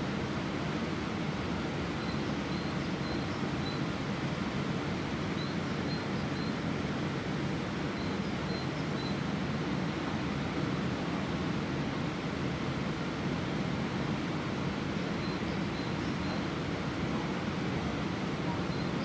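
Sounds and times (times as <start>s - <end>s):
river flowing: 0.0s - 19.0s
faint high bird chirps: 2.0s - 3.8s, 5.4s - 6.6s, 8.0s - 9.2s, 15.2s - 16.5s, 18.5s - 19.0s.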